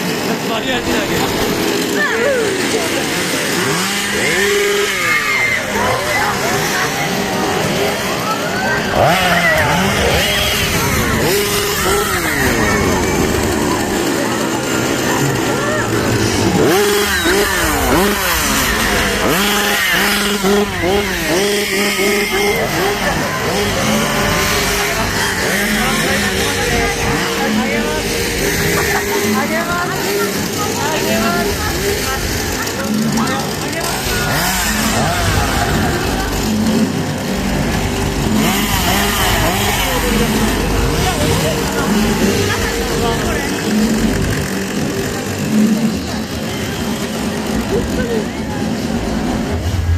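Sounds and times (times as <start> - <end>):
chainsaw engine revving: 0.0 - 49.9.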